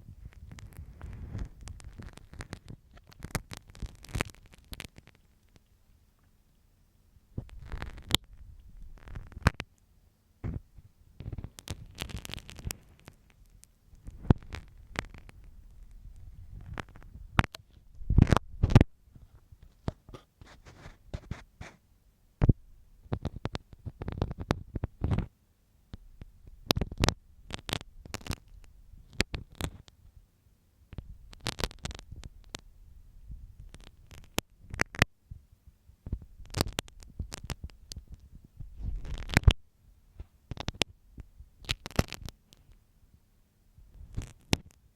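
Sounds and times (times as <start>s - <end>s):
pin scratching microphone: 0.0s - 5.7s, 7.4s - 9.7s, 10.4s - 21.8s, 36.1s - 39.6s.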